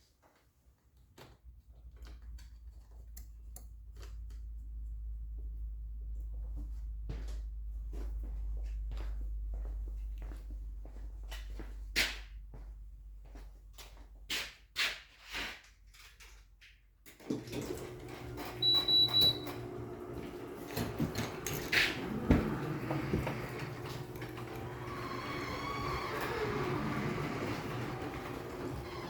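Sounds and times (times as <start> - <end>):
mechanical hum with whine: 17.7 - 29.0.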